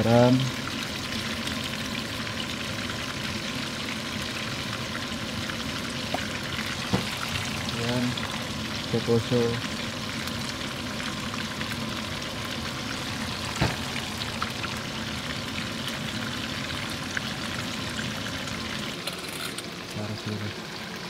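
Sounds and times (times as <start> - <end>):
fish sizzling in a frying pan: 0.0 - 21.0.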